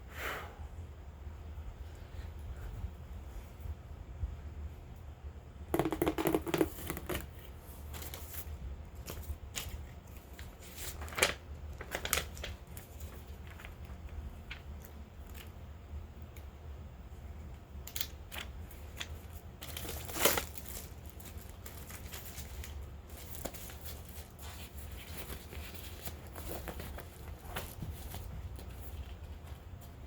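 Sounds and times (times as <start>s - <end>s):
paper and plastic crinkling: 6.4s - 15.6s, 17.9s - 30.0s
tearing rustle: 19.6s - 28.9s.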